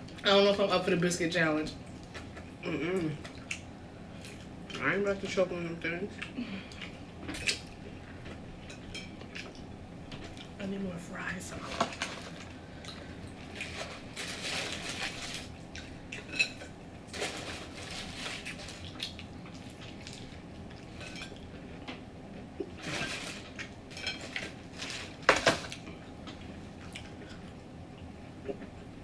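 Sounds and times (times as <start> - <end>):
food containers rustling: 13.4 - 15.6, 16.3 - 21.4, 22.7 - 25.9.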